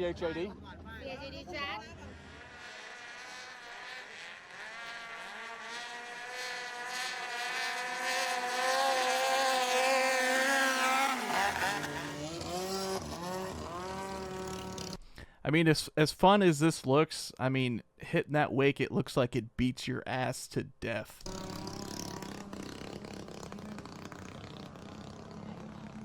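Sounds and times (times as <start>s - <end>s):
boat engine revving hard: 2.0s - 15.0s, 21.2s - 26.0s.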